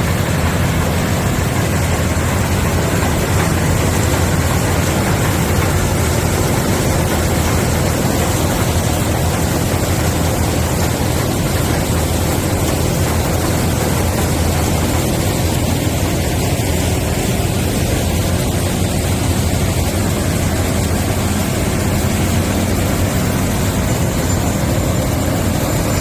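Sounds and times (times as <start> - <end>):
combine engine drone: 0.0 - 26.0.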